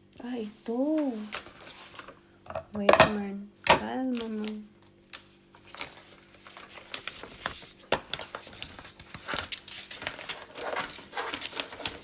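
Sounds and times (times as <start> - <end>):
packaging crinkling: 1.1 - 2.2, 4.1 - 12.0.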